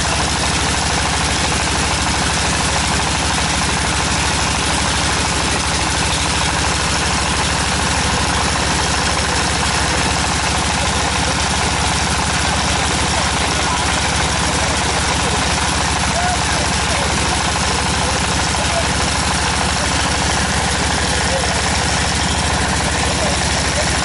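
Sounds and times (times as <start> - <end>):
drilling rig engine running: 0.0 - 24.0.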